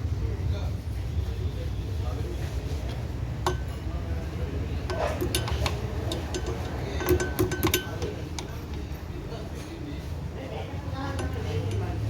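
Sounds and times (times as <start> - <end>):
metal tools clinking: 3.4 - 3.9, 4.8 - 9.0, 11.1 - 12.0.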